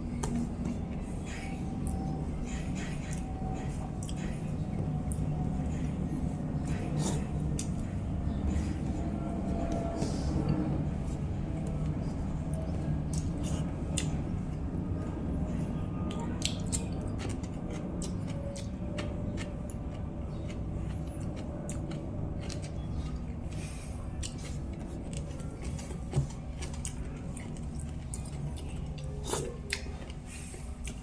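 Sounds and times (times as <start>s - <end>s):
steady low hum: 0.0s - 31.0s
person chewing: 6.1s - 9.0s, 12.5s - 14.7s, 16.1s - 31.0s.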